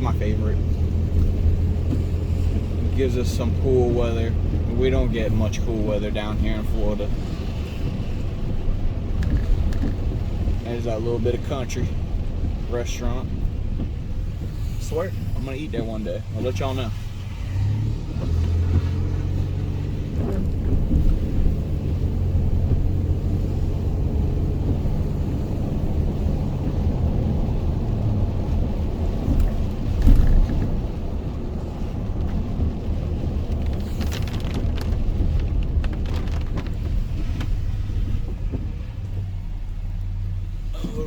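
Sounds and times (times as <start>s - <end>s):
truck engine and road rumble: 0.0s - 41.0s
tyre hiss on wet road: 12.4s - 20.2s, 31.5s - 34.1s.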